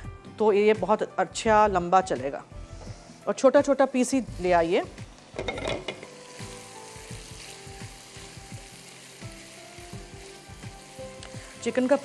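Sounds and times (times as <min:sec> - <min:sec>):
chicken sizzling in oil: 0:03.9 - 0:12.0.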